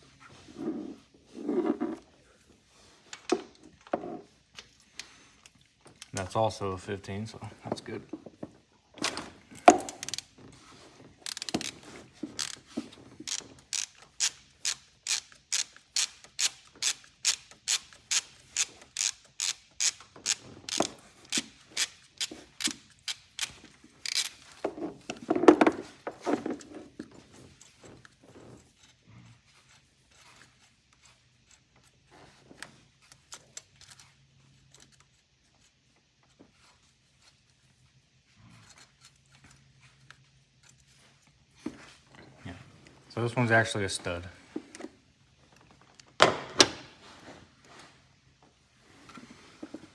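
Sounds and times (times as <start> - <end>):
socket ratchet clicking: 9.8 - 10.3, 11.2 - 11.8, 12.4 - 12.6, 13.2 - 24.6.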